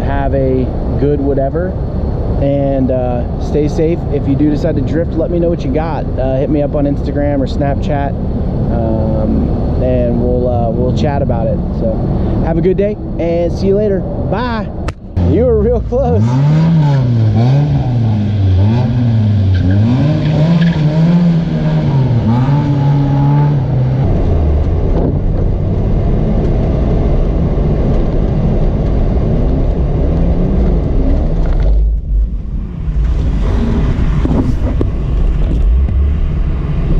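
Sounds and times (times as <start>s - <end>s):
car engine revving: 0.0s - 36.9s.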